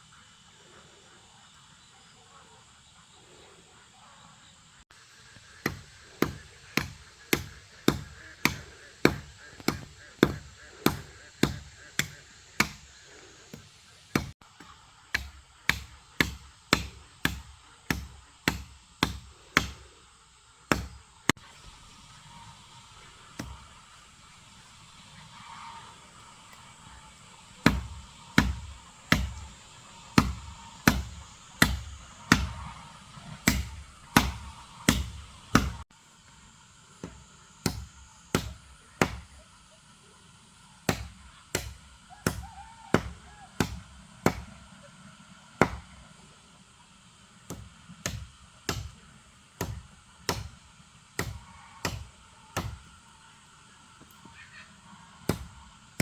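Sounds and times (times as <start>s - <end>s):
blade chopping wood: 5.5s - 12.9s, 13.5s - 19.9s, 20.7s - 21.4s, 23.2s - 23.8s, 27.6s - 35.8s, 37.0s - 39.4s, 40.9s - 44.6s, 45.6s - 46.0s, 47.5s - 52.9s, 55.3s - 56.0s.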